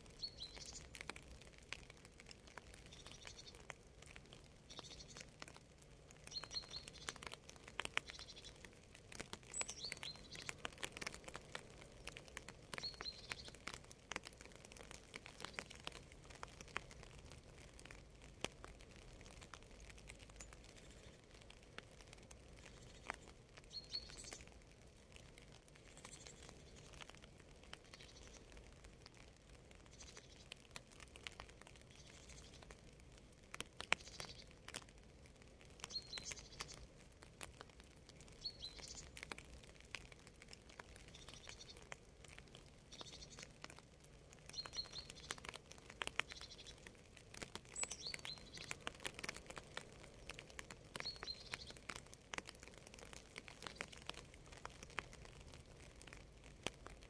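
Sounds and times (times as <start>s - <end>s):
light rain pattering: 0.0s - 57.0s
bird chirping: 0.2s - 1.0s, 4.7s - 5.2s, 6.2s - 7.3s, 8.0s - 8.6s, 9.4s - 11.1s, 12.7s - 13.7s, 22.6s - 24.4s, 35.9s - 36.8s, 38.3s - 39.1s, 42.9s - 43.4s, 44.5s - 45.6s, 46.2s - 46.8s, 47.7s - 48.8s, 51.0s - 51.8s.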